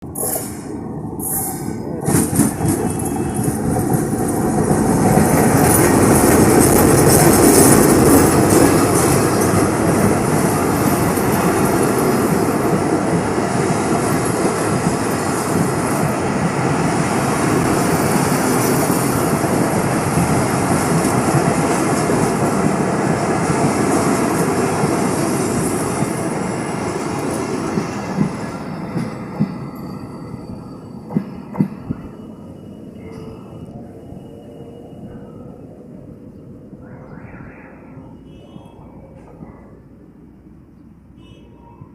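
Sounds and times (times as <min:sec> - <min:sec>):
train wheels rumbling on rails: 0:00.0 - 0:36.8.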